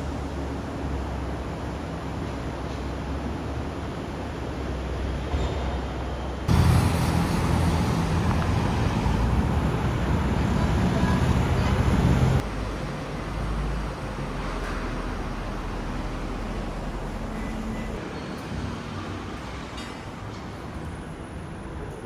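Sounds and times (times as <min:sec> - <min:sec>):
street traffic noise: 0:00.0 - 0:22.0
car engine running loud: 0:06.5 - 0:12.6.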